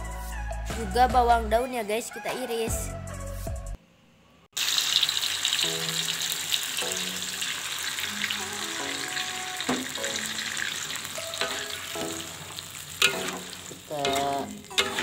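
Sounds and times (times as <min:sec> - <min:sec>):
paste sizzling in hot oil: 0:04.6 - 0:15.0
metal spatula scraping wok: 0:09.7 - 0:15.0.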